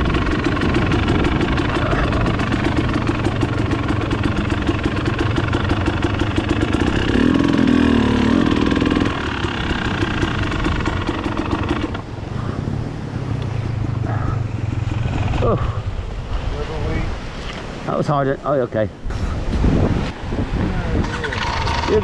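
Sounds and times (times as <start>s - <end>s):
motorcycle engine running: 0.0s - 16.5s, 21.3s - 22.0s.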